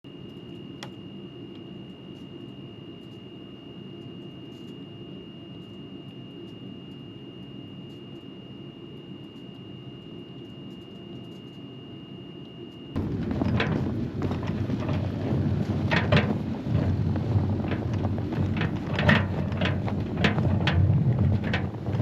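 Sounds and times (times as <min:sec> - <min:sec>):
thin high whine: 0:00.1 - 0:13.8
low rumbling noise: 0:13.0 - 0:22.0.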